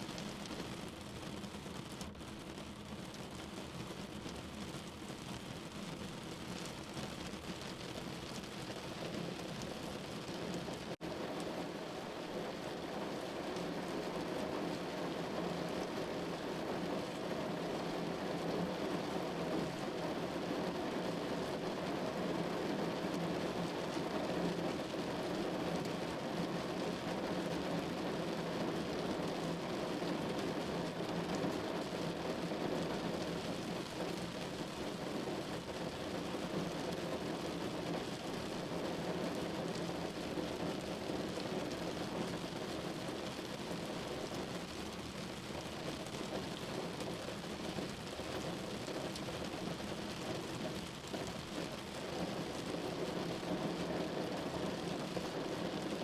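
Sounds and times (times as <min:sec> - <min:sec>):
rain on window glass: 0:00.0 - 0:56.0.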